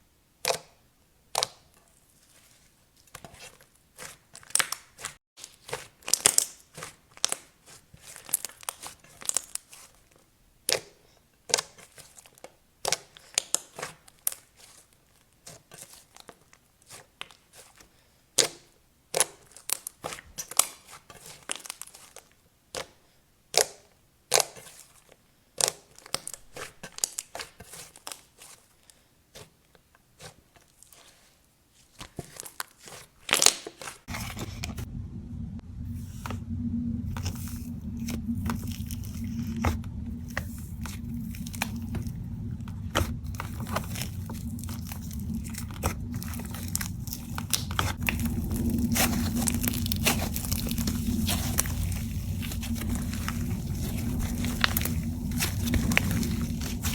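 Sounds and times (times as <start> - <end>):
slime clicking and crackling: 43.4 - 56.9.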